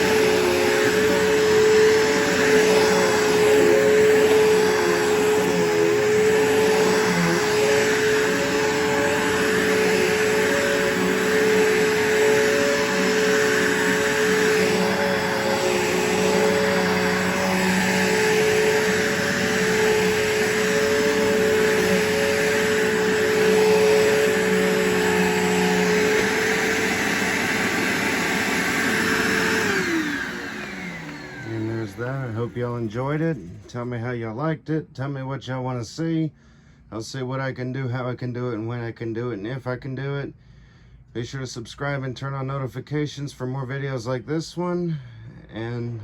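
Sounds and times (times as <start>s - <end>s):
vacuum cleaner running: 0.0s - 33.8s.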